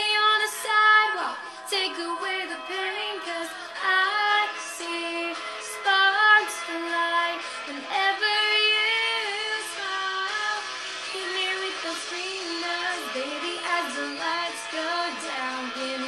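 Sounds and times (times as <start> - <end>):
young female voice singing: 0.0 - 16.0.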